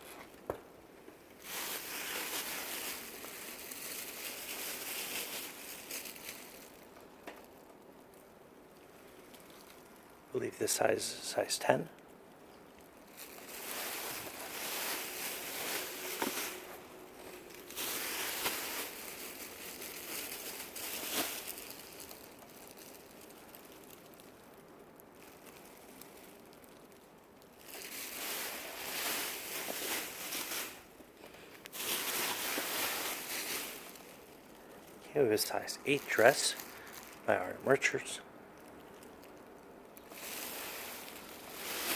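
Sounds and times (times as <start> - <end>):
fabric rustling and crinkling: 0.0 - 10.3, 12.4 - 38.0, 38.6 - 41.9.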